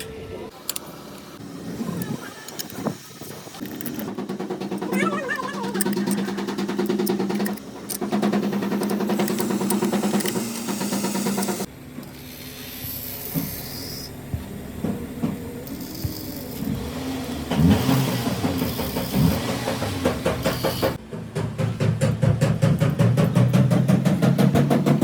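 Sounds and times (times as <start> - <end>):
car engine running: 3.2 - 12.0, 14.2 - 25.0.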